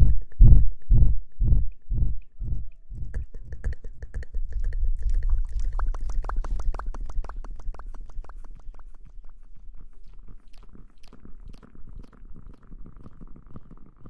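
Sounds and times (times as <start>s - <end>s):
deep thumps on microphone: 0.0s - 7.5s
low rumble: 0.0s - 13.8s
crackly tapping and rubbing: 2.7s - 14.0s.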